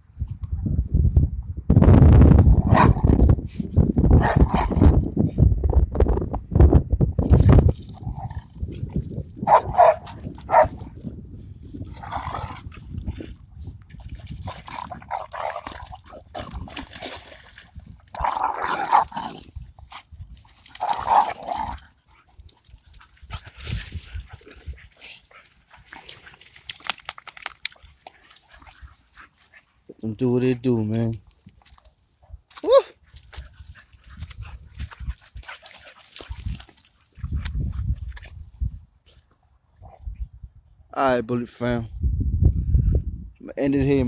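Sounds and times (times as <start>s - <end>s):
dogs barking and whining: 2.7s - 3.0s, 4.2s - 4.6s, 9.4s - 10.8s.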